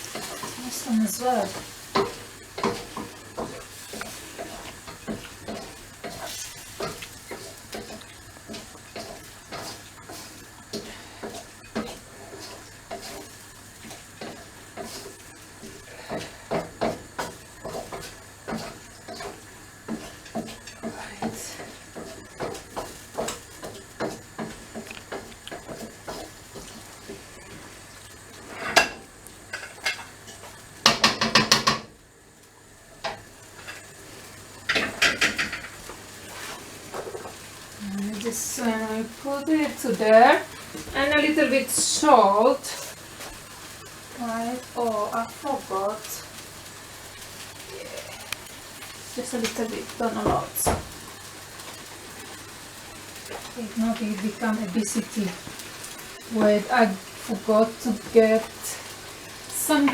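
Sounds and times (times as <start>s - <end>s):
utensil scraping a pan: 0.0s - 27.6s, 28.3s - 30.4s
faint food sizzle: 0.0s - 59.9s.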